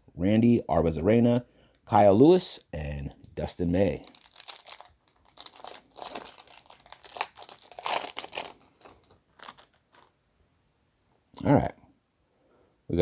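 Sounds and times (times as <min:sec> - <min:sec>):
foil wrapper tearing and crinkling: 0:03.1 - 0:10.1.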